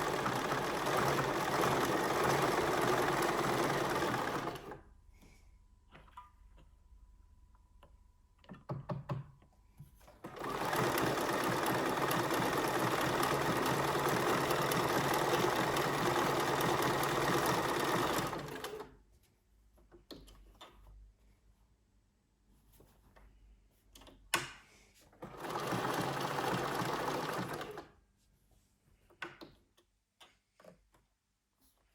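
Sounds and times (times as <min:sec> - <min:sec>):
sewing machine running: 0:00.0 - 0:04.8, 0:10.3 - 0:18.9, 0:25.2 - 0:27.9.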